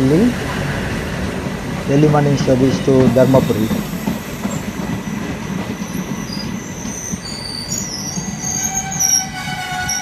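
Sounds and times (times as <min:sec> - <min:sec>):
train rumble and wheel noise: 0:00.0 - 0:10.0
high-pitched wheel squeals: 0:03.2 - 0:10.0.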